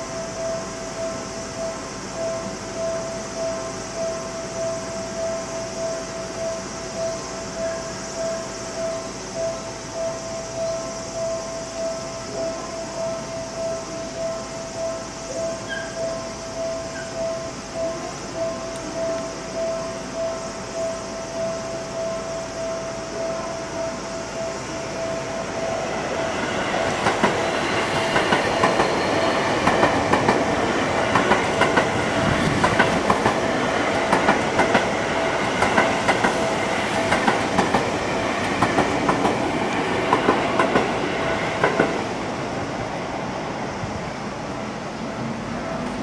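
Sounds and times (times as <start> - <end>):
train wheels clattering over rail joints: 26.3 - 42.2.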